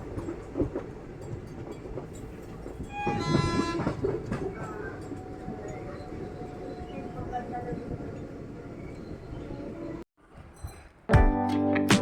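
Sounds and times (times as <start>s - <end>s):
train rumbling: 0.0s - 10.7s
train horn: 2.9s - 4.2s.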